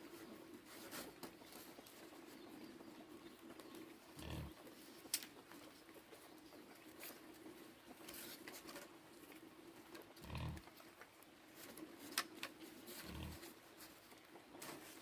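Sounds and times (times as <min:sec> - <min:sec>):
pig grunting: 0:04.1 - 0:04.6, 0:10.2 - 0:10.7, 0:13.0 - 0:13.5.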